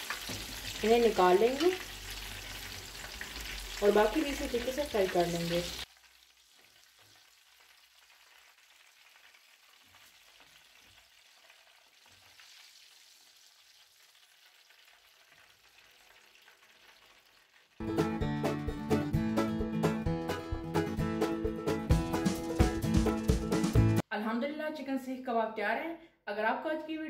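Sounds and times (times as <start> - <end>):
food sizzling in hot oil: 0.0 - 17.8
plucked-string music: 17.8 - 24.0.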